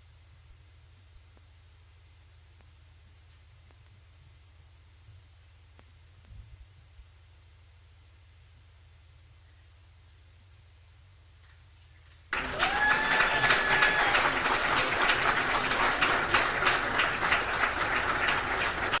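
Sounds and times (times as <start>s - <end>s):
faint low hum: 0.0s - 19.0s
audience applause: 12.3s - 19.0s
audience cheering: 12.3s - 19.0s.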